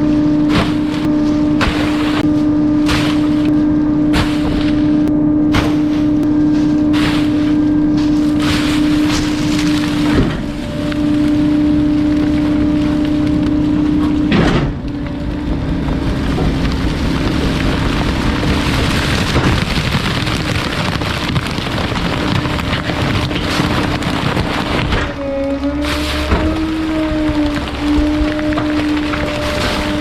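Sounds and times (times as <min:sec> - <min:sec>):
hydraulic hum: 0:00.0 - 0:30.0
material crackling and creaking: 0:05.8 - 0:30.0
thumps: 0:12.4 - 0:30.0.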